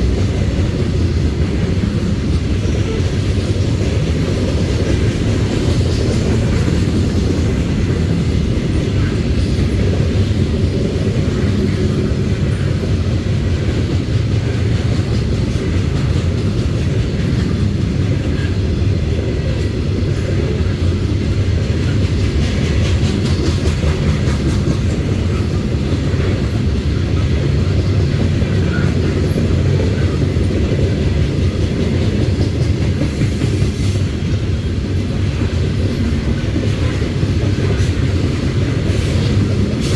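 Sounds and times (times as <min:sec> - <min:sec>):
freight train rumbling past: 0:00.0 - 0:39.9
wheels clicking over rail joints: 0:00.0 - 0:39.9.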